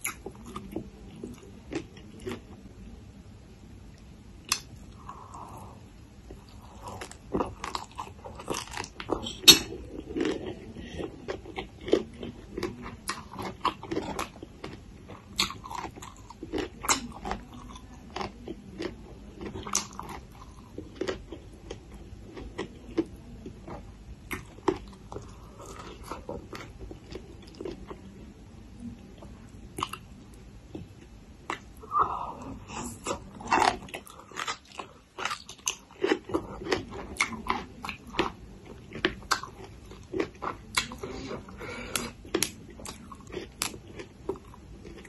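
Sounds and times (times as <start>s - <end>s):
crunchy chewing and biting: 6.3s - 28.0s, 32.8s - 45.0s.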